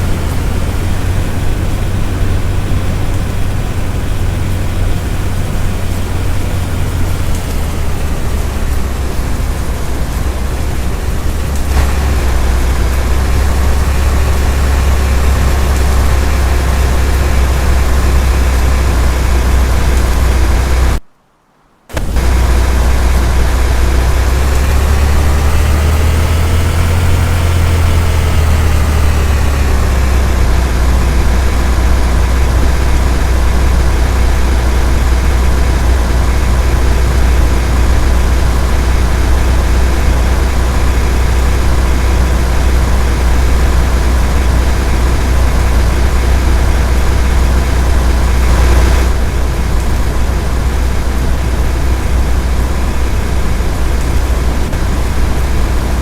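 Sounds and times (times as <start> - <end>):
vehicle engine rumble: 0.0 - 21.0, 21.9 - 56.0.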